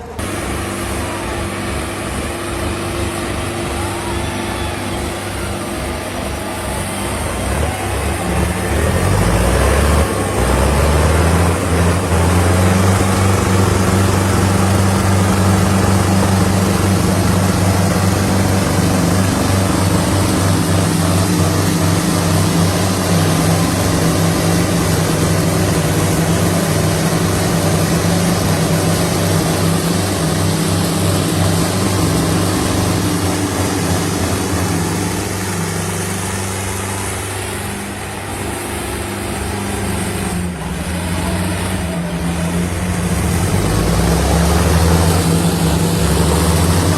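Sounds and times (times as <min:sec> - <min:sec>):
tractor diesel engines revving: 0:00.0 - 0:46.9.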